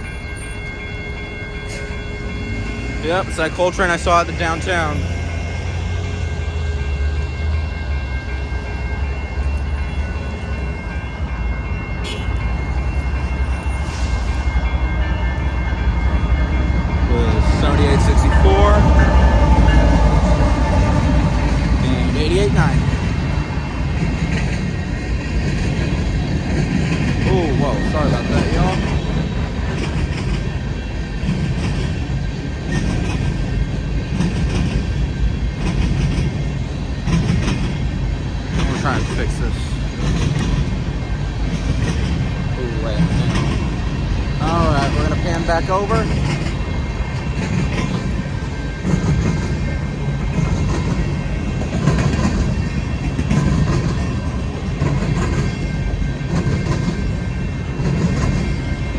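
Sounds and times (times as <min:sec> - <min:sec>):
diesel locomotive deep rumble: 0:00.0 - 0:58.9
wheels clicking over rail joints: 0:22.4 - 0:58.9.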